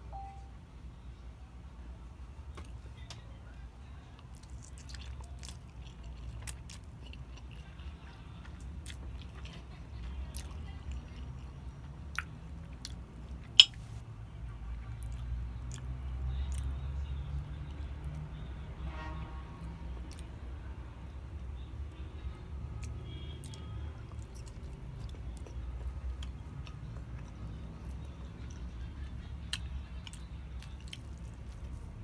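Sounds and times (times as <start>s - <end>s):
person chewing food: 4.2s - 14.0s, 22.8s - 32.0s.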